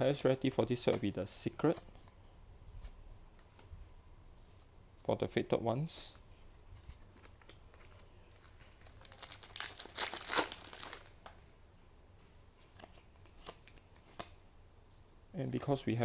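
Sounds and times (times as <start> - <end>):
wrapper crinkling and tearing: 7.1 - 11.3.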